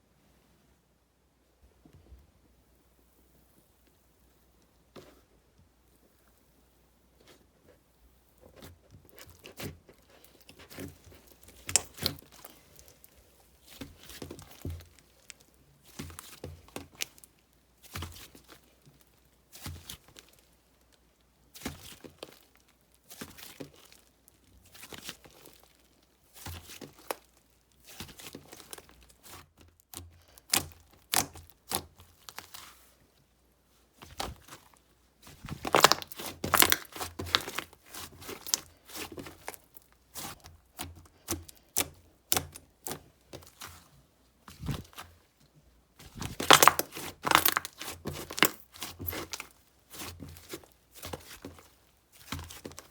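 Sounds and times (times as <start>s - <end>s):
slime squishing and crackling: 8.5s - 33.0s, 33.9s - 43.9s, 44.5s - 45.2s, 46.0s - 52.9s.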